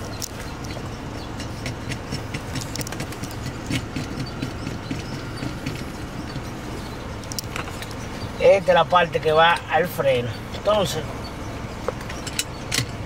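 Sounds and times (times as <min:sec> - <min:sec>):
vehicle engine idling: 0:00.0 - 0:13.0
metal parts clicking and knocking: 0:01.4 - 0:05.9, 0:12.0 - 0:13.0.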